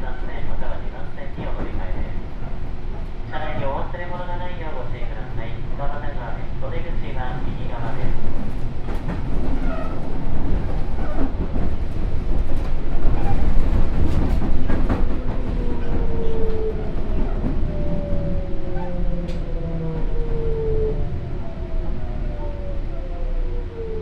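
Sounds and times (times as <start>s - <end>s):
electric train rumble: 0.0s - 24.0s
rail clicks: 6.8s - 19.6s.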